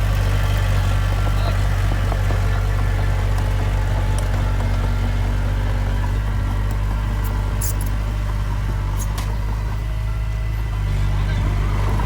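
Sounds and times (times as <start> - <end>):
heavy diesel engine humming: 0.0 - 12.0.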